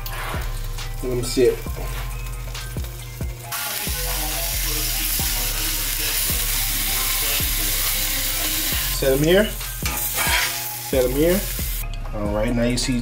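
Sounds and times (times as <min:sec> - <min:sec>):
burgers sizzling in a skillet: 0:00.0 - 0:11.8
background music with steady beat: 0:00.0 - 0:13.0.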